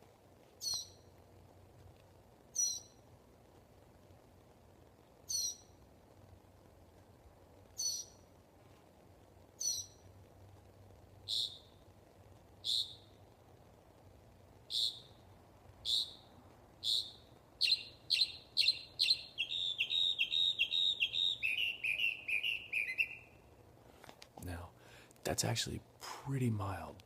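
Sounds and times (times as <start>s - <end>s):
bird calling high notes: 16.8s - 23.5s.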